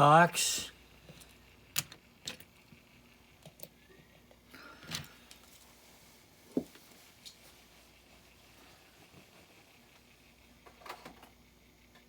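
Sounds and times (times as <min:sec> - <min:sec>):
toy cars clicking and tapping: 0:01.2 - 0:02.8.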